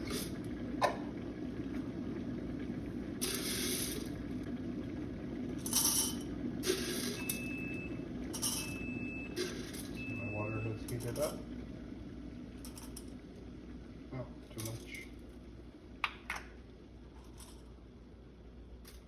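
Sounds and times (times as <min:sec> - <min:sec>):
coffee beans pouring into cup: 0:03.2 - 0:04.2, 0:05.6 - 0:07.4.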